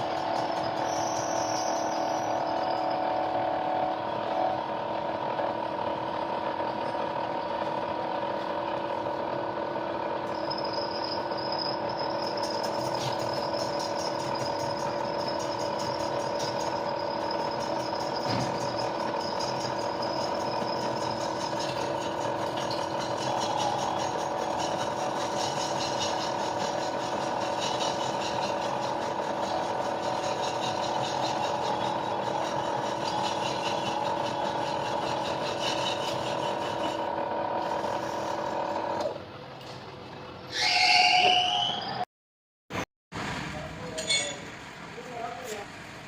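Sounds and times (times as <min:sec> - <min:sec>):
machine tool cutting metal: 0:00.0 - 0:04.5, 0:10.2 - 0:39.2.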